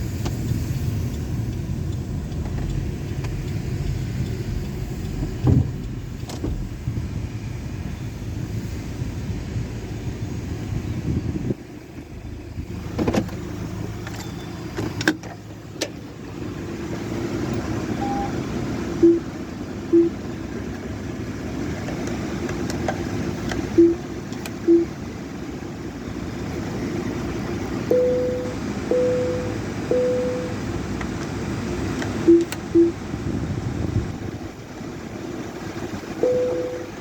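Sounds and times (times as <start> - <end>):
car wash equipment running: 0.0 - 37.0
long high beep: 17.9 - 18.4, 19.0 - 19.3, 19.9 - 20.2, 23.8 - 24.1, 24.7 - 24.9, 27.9 - 30.7, 32.2 - 33.0, 36.2 - 37.0
short electronic beeps: 17.9 - 18.4, 19.0 - 19.3, 19.9 - 20.2, 23.7 - 25.0, 27.9 - 30.7, 32.2 - 33.0, 36.1 - 37.0
sharp clicks: 32.0 - 33.0.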